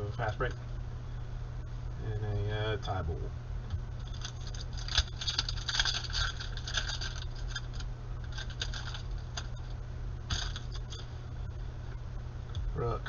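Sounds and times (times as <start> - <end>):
steady low hum: 0.0 - 13.0
cards rustling: 4.0 - 9.7.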